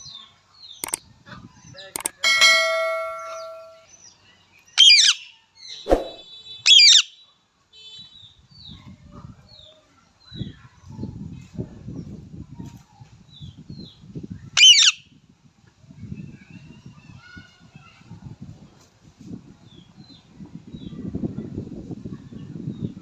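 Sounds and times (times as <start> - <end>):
ringing tone: 2.0 - 3.8
short chirps: 5.9 - 6.2
parrot screeching: 14.6 - 15.0.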